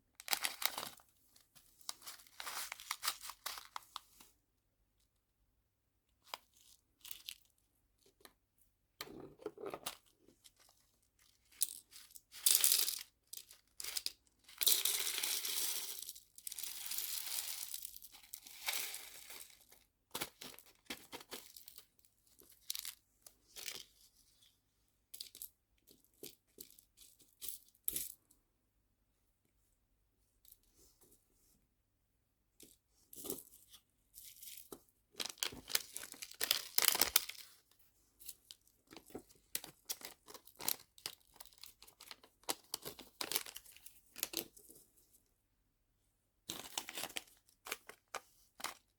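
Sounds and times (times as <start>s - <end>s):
plastic packaging crinkling: 0.2s - 1.0s, 1.9s - 3.8s, 35.2s - 37.4s.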